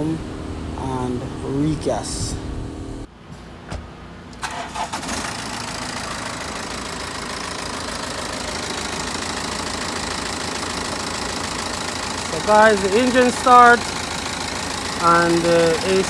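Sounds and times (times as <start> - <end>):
car engine idling: 0.0 - 3.1, 3.9 - 16.0
car engine cranking and starting: 3.9 - 16.0.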